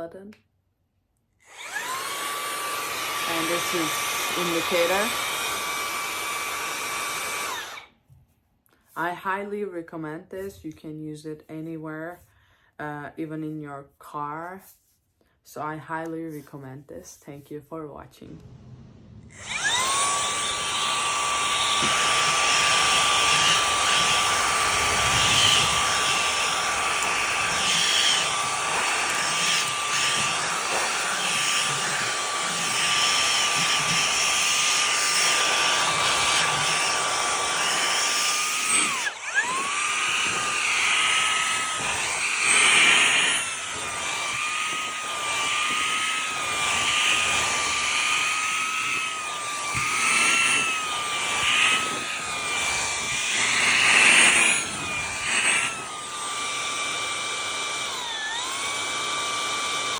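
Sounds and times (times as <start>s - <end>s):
handheld vacuum motor whining: 1.4s - 7.9s, 19.2s - 59.9s.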